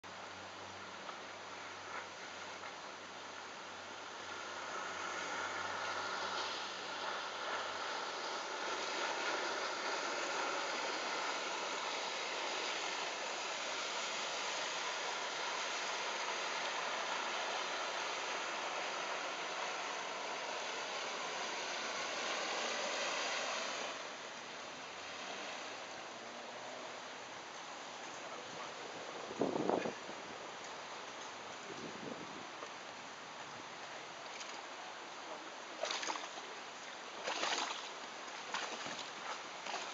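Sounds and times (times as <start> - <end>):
wind: 0.0 - 39.9
water rushing: 0.1 - 39.9.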